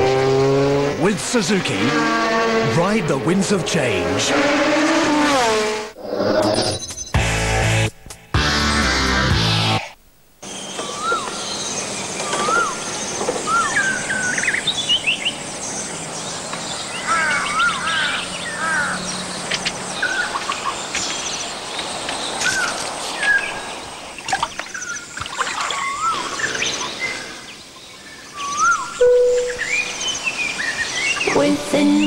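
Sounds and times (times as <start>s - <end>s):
outdoor background noise: 0.0s - 32.0s
birds singing: 10.4s - 32.0s.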